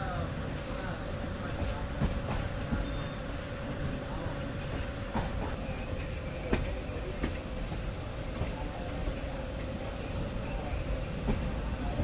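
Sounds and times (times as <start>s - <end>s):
train interior rumble: 0.0s - 12.0s
faint squeal: 0.4s - 1.5s, 7.4s - 8.4s.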